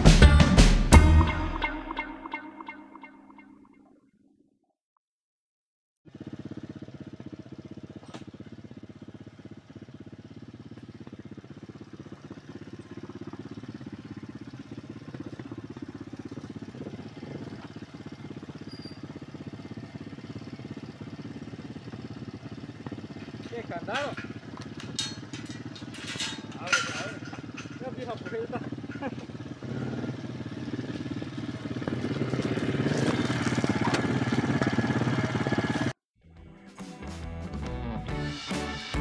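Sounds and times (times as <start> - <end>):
motorcycle engine running: 6.1 - 36.0.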